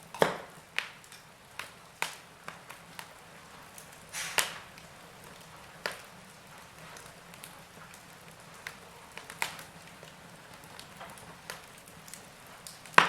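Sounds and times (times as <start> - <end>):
burning logs crackling: 0.0 - 13.0
fire hiss: 0.4 - 13.0.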